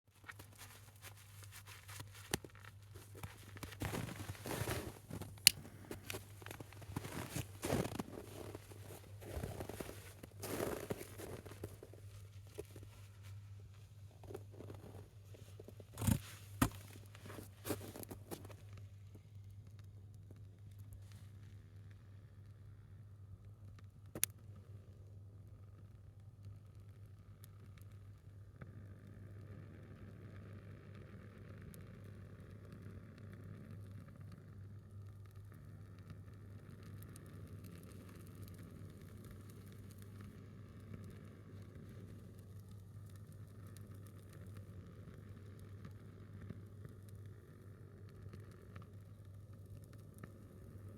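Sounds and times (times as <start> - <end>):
firewood crackling: 0.1 - 18.8, 35.3 - 50.9.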